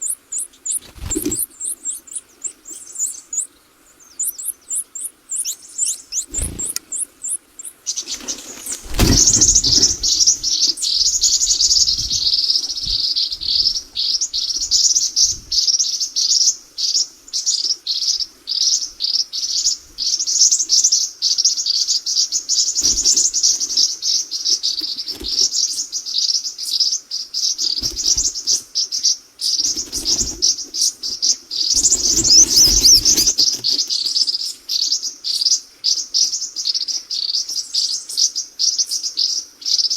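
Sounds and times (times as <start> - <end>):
small birds cheeping: 0.0 - 39.9.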